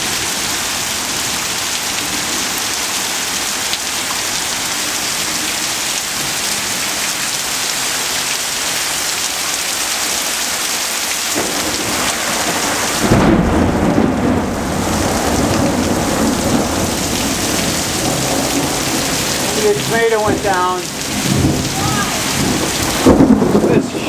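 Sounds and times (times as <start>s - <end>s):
heavy rain pouring: 0.0s - 24.0s
low rumble of thunder: 11.4s - 24.0s.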